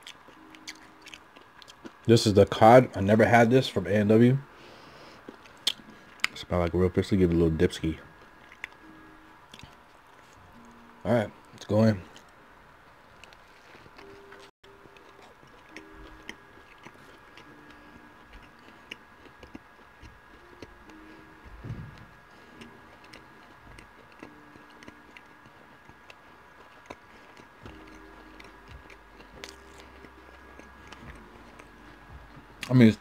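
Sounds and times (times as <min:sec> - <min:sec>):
chewing a sandwich: 0:00.0 - 0:02.1, 0:04.7 - 0:06.4, 0:08.1 - 0:10.8, 0:11.4 - 0:32.9
wet mouth clicks: 0:05.4 - 0:06.4.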